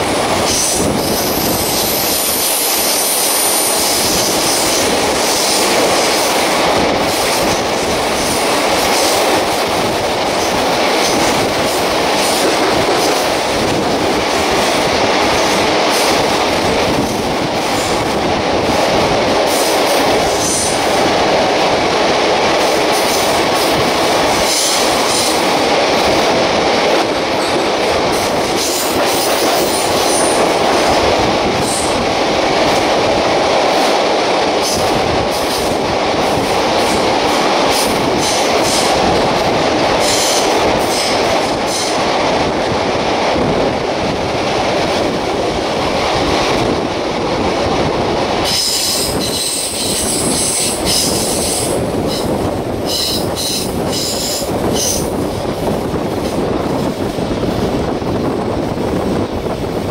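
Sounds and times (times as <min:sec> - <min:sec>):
other train rushing past: 0:00.0 - 0:59.9
train wheels rumbling on rail: 0:00.0 - 0:59.9.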